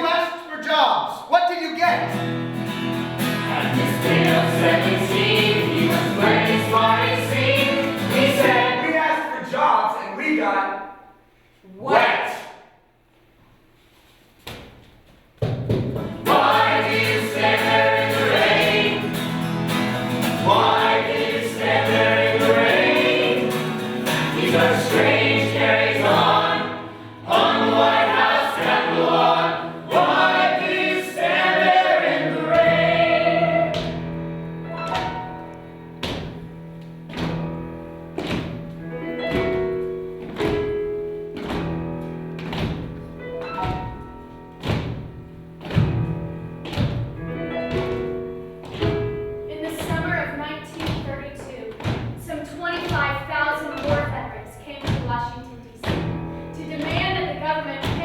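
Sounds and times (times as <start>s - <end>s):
instrumental accompaniment: 2.1s - 8.8s, 15.8s - 58.0s
group of voices singing: 3.3s - 9.2s, 16.2s - 34.0s.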